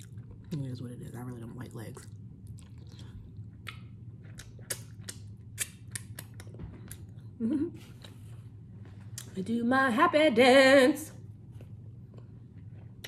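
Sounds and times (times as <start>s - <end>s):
chewing with wet mouth clicks: 1.9s - 7.2s.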